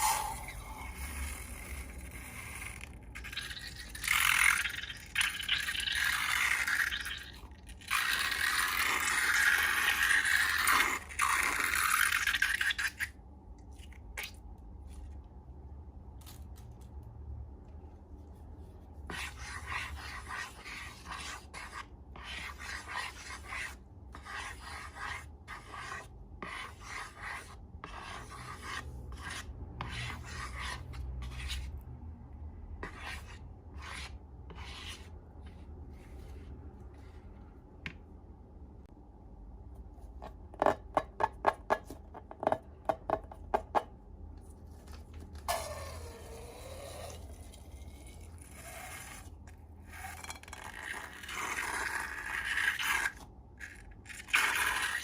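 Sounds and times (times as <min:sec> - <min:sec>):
rubbing and scraping strokes: 0:00.0 - 0:04.9, 0:18.1 - 0:31.8, 0:32.8 - 0:37.5.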